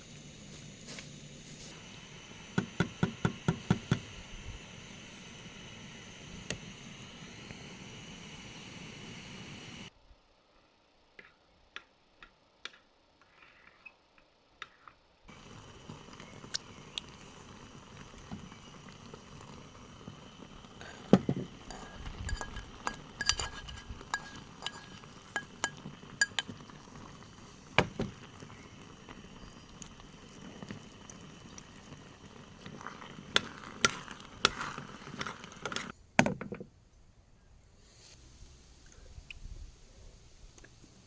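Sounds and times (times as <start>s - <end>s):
steady background hiss: 0.0s - 36.2s, 36.8s - 41.0s
dishes and utensils clinking: 21.7s - 26.6s.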